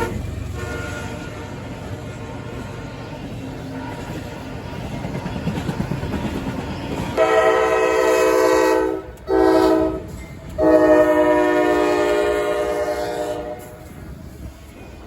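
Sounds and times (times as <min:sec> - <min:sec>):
locomotive air horn blasts: 0:00.0 - 0:02.7, 0:07.2 - 0:13.8
train rumble: 0:00.0 - 0:15.0.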